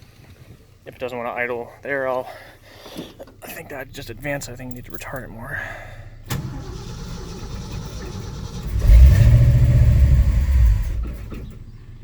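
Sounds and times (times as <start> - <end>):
car engine revving and idling: 6.4 - 12.0.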